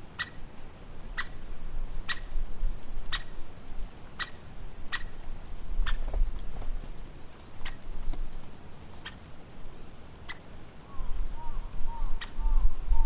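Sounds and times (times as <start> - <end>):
woodpecker call notes: 0.2 - 0.4, 1.2 - 1.4, 2.0 - 2.3, 4.2 - 5.2, 10.2 - 13.0.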